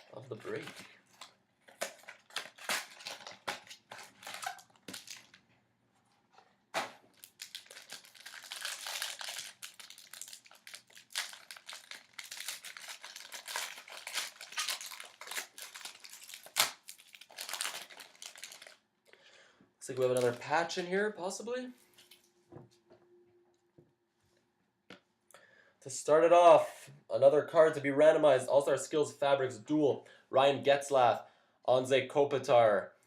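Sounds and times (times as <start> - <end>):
packaging crinkling and tearing: 0.1 - 5.5, 6.8 - 18.8, 19.9 - 20.8.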